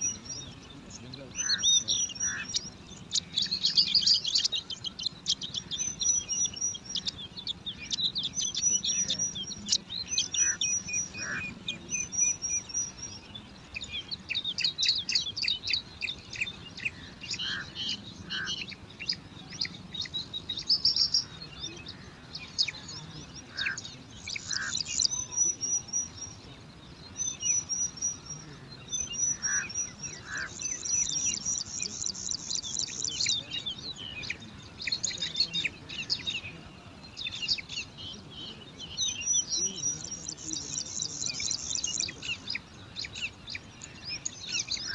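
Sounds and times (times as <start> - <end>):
chicks begging chirps: 0.0 - 44.9.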